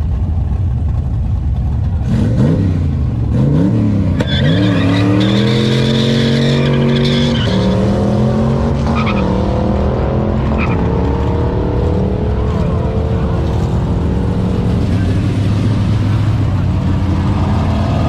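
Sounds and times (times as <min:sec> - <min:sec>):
other engines idling: 0:00.0 - 0:03.3
car engine revving: 0:00.0 - 0:18.0.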